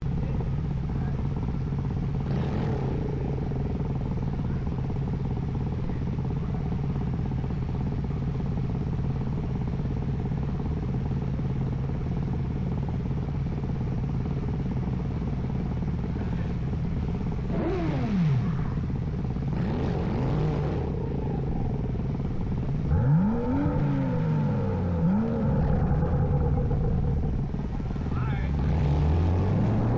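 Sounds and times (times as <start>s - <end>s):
car engine revving: 1.8s - 5.6s, 17.1s - 29.9s.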